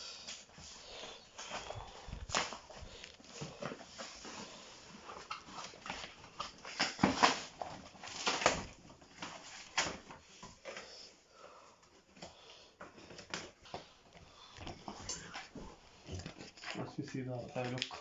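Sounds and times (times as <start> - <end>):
packaging rustling and scraping: 0.2 - 10.9.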